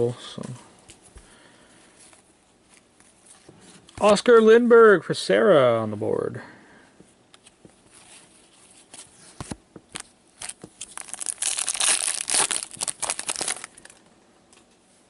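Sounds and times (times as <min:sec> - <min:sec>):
wrapper tearing and crinkling: 0:10.0 - 0:14.0.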